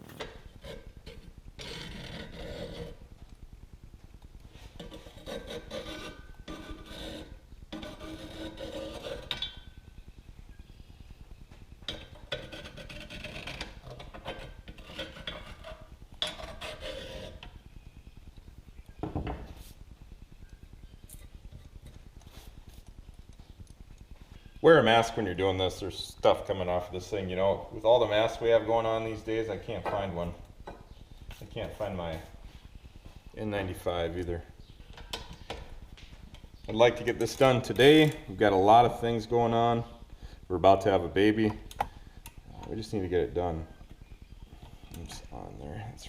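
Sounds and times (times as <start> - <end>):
hand scraping cast iron stove: 4.5 - 9.7, 11.9 - 17.6.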